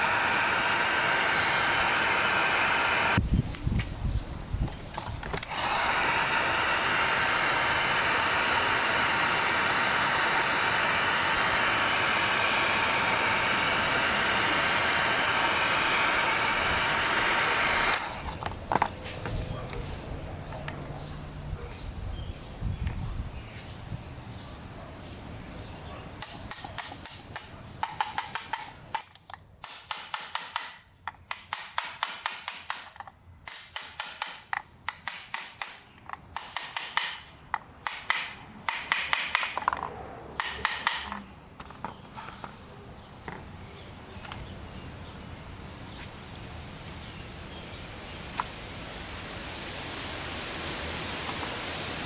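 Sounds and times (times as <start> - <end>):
steady rushing hiss: 0.0 - 29.1, 43.6 - 52.0.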